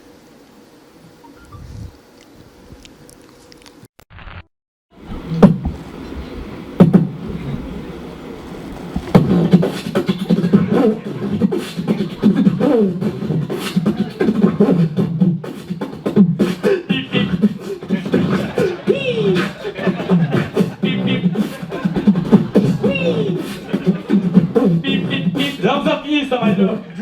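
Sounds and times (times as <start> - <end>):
beatbox-like mouth sounds: 6.8 - 7.3, 9.0 - 26.8.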